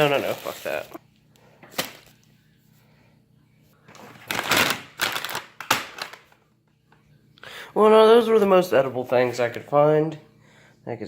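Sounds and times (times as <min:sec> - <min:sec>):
packaging rustling and clattering: 0:00.0 - 0:01.0, 0:03.9 - 0:06.4.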